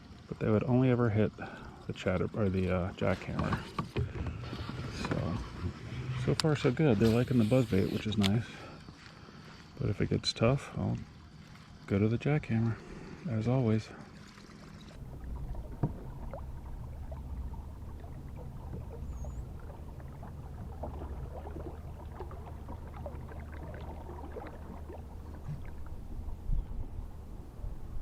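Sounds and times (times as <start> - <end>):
water splashing and lapping: 0.0 - 27.2
steady low rumble: 15.0 - 28.0.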